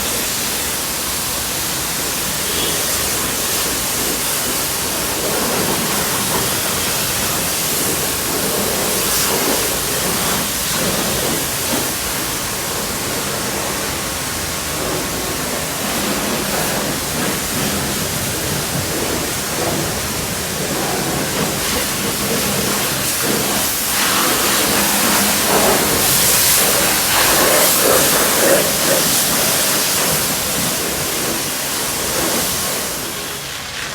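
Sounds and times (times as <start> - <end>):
water spraying hiss: 0.0 - 33.9.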